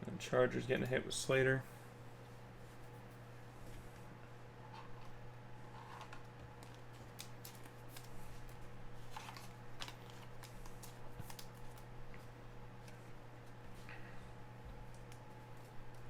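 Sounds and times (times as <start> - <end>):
low electrical hum: 0.0 - 16.0
cards clicking and rustling: 5.8 - 13.0.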